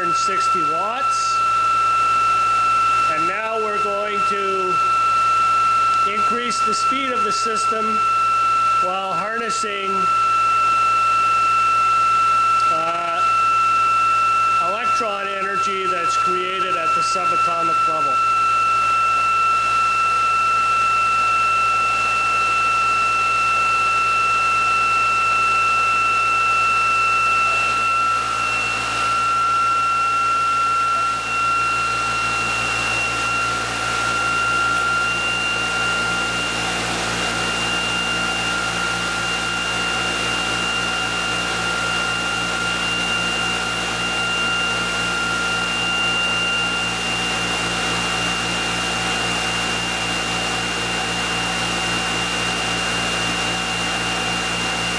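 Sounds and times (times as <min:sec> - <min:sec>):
electric motor whining: 0:00.0 - 0:54.9.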